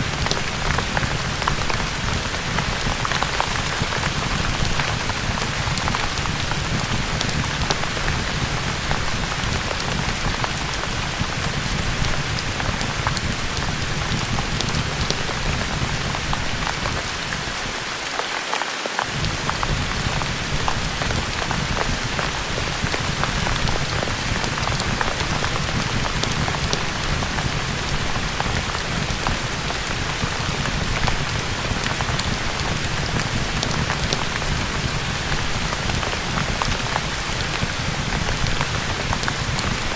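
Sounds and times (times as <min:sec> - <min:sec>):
heavy rain: 0:00.0 - 0:39.9
sharp crackles: 0:19.0 - 0:39.9.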